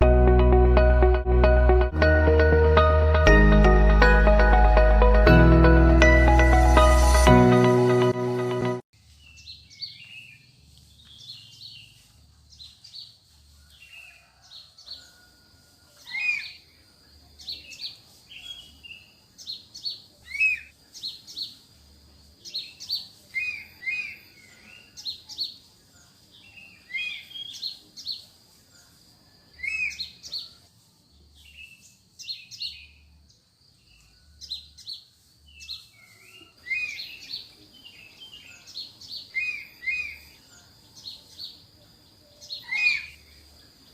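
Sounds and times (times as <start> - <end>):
steady high-pitched tone: 0.0 - 8.8.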